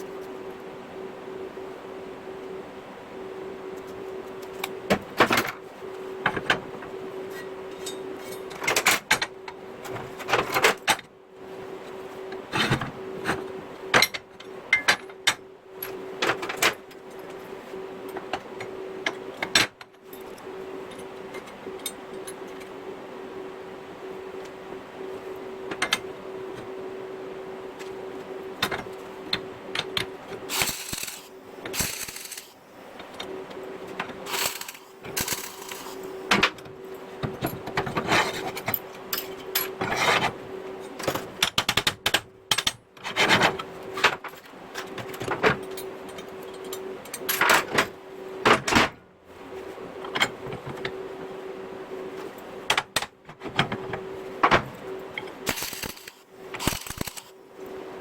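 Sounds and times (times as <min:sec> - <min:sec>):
steady low hum: 0:00.0 - 0:58.0
metal parts clinking: 0:30.5 - 0:32.6, 0:34.3 - 0:36.2, 0:55.5 - 0:57.3.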